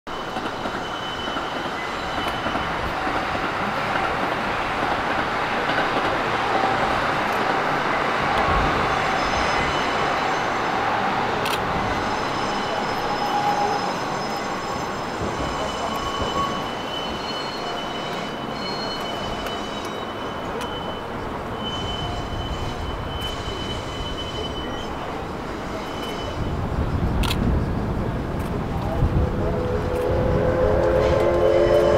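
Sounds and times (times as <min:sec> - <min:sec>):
steel wheels squealing: 0:00.1 - 0:04.1, 0:06.1 - 0:27.2
railway car rolling on rails: 0:00.1 - 0:31.9.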